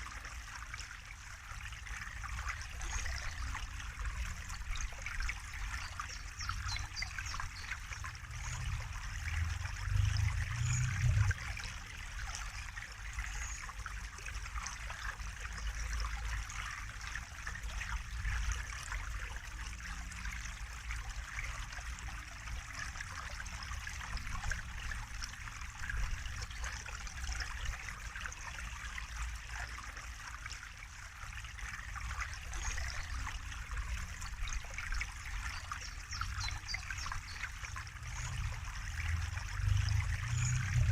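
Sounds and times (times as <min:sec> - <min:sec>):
water trickling and splashing: 0:00.0 - 0:40.9
low rumble: 0:08.3 - 0:11.5.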